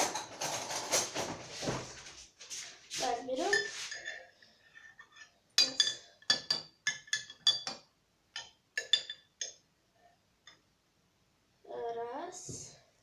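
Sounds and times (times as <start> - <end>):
metal spoon clinking on dish: 3.5 - 9.6.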